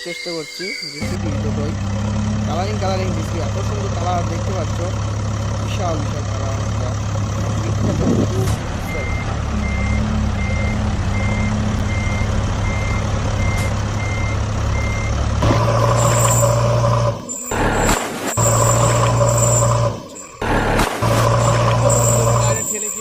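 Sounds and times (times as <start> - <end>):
toy reversing beeps: 0.0 - 1.2, 8.9 - 15.2, 15.8 - 20.4, 21.4 - 23.0
high whine: 15.4 - 23.0.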